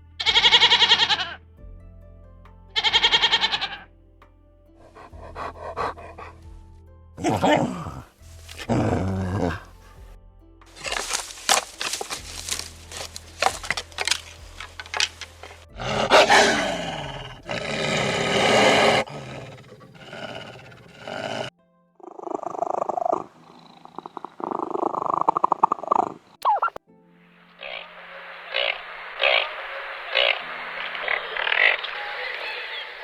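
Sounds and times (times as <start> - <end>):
rapid pulsing animal calls: 0.2 - 1.4, 2.8 - 3.8, 10.8 - 21.5, 22.1 - 26.8, 28.5 - 33.0
short sharp animal calls: 2.8 - 3.8
animal roar falling in pitch: 7.2 - 9.7.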